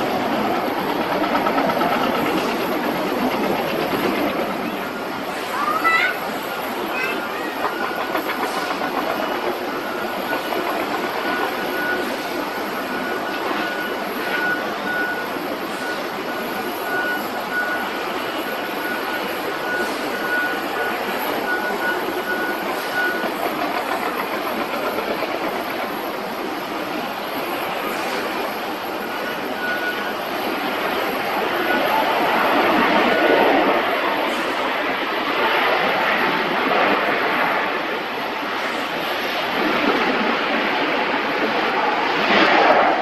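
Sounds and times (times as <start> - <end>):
high engine whine: 0.0 - 43.0
jet engines running: 0.0 - 43.0.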